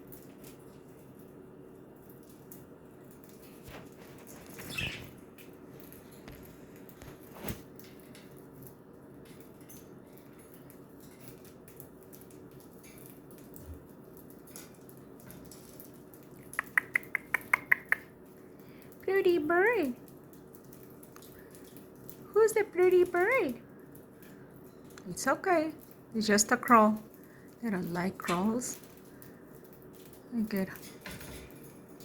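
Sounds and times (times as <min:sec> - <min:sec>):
budgerigars rustling and tapping: 0:03.8 - 0:05.2.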